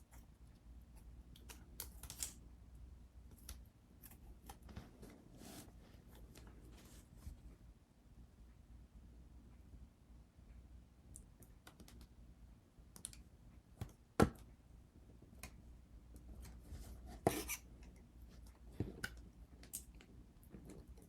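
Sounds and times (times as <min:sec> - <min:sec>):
small clicks taps and scrapes: 0:11.1 - 0:12.2.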